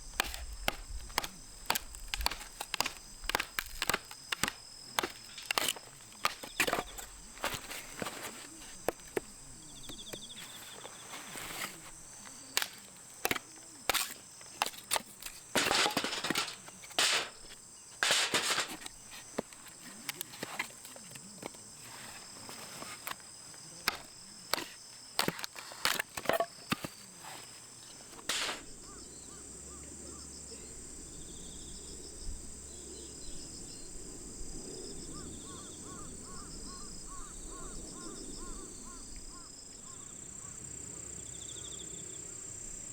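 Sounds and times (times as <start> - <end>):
crickets chirping: 0.0 - 42.9
sharp clicks and knocks: 12.6 - 20.7.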